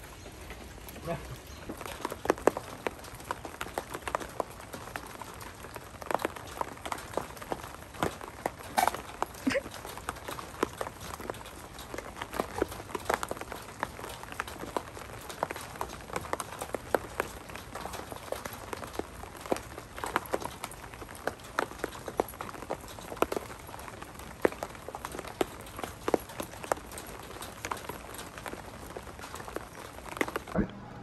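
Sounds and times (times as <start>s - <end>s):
dogs running on wet mulch: 0.0s - 30.6s
steady rain: 0.0s - 31.0s.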